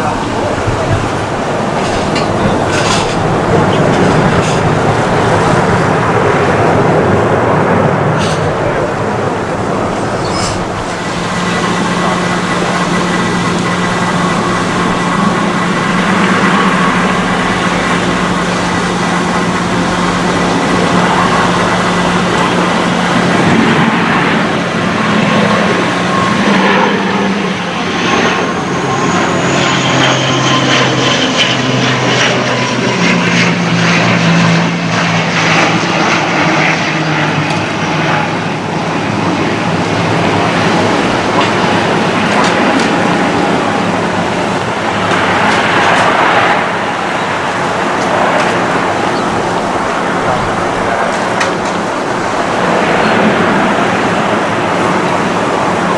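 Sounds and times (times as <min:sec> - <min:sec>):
high whine: 0:00.0 - 0:55.9
turboprop propellers humming: 0:00.0 - 0:55.9.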